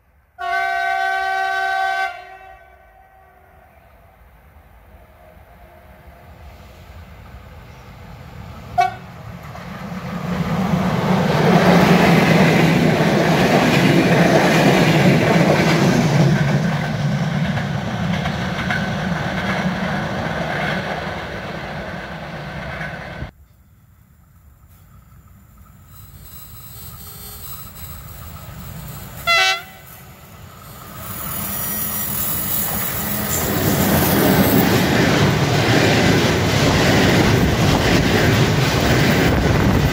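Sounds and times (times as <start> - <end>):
train passing: 0.0 - 39.9
train horn toot: 0.4 - 4.0, 4.9 - 6.3, 8.8 - 9.1, 29.2 - 30.0.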